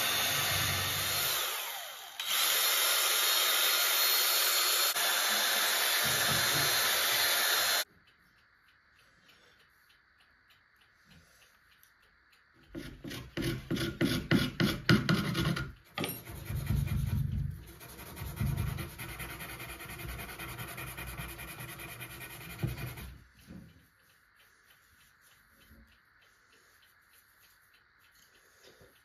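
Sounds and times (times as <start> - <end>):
rasping on a hard surface: 12.7 - 23.5.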